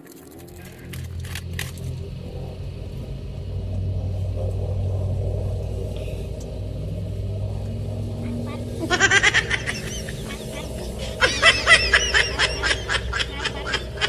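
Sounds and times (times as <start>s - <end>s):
sharp clicks: 0.0s - 2.0s
engine running steadily: 0.0s - 14.0s.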